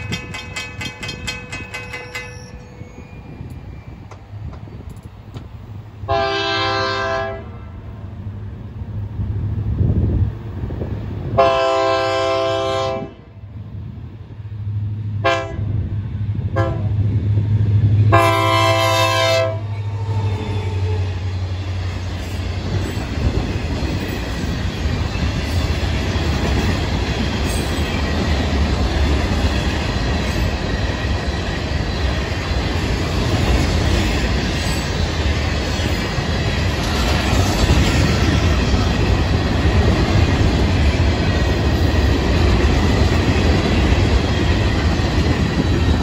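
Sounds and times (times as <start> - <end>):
train wheels rumbling: 0.0 - 46.0
locomotive horn blasts: 6.1 - 7.7, 11.4 - 13.3, 15.2 - 15.7, 16.6 - 16.9, 18.1 - 21.0.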